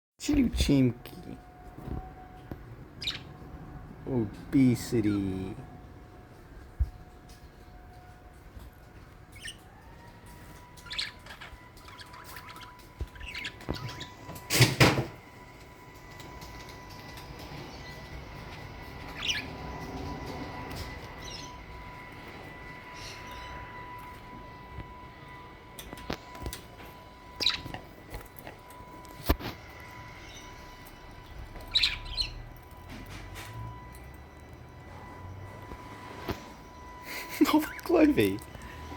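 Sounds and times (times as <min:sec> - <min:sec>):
budgerigars chirping: 0:03.0 - 0:03.4, 0:09.4 - 0:09.6, 0:10.8 - 0:14.3, 0:18.6 - 0:19.6, 0:27.4 - 0:27.7, 0:31.6 - 0:32.5
budgerigar chirping: 0:31.7 - 0:32.4.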